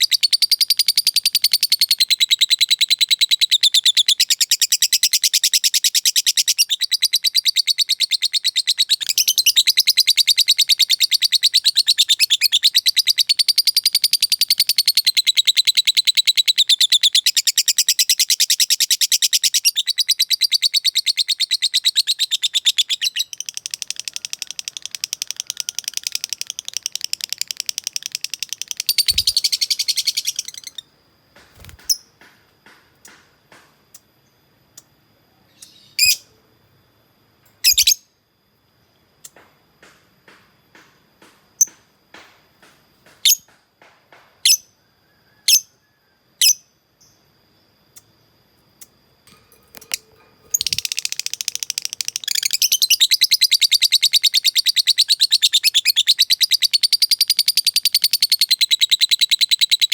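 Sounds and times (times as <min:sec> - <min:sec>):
lovebird chattering song: 0:00.0 - 0:30.8, 0:49.8 - 0:59.9.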